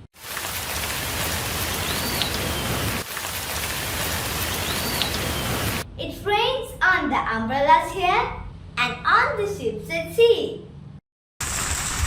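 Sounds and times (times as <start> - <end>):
steady rain hiss: 0.0 - 5.8.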